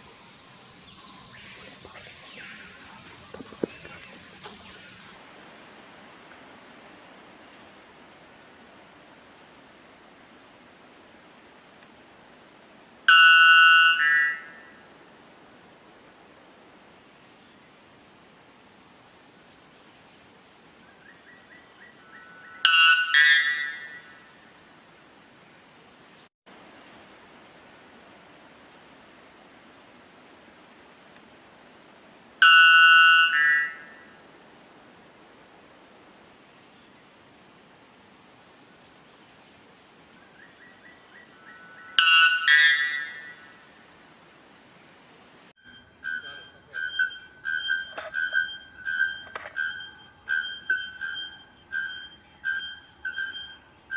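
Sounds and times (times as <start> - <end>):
high insect buzz: 0.0 - 5.2
high insect drone: 0.0 - 5.2, 17.0 - 26.3, 36.4 - 53.9.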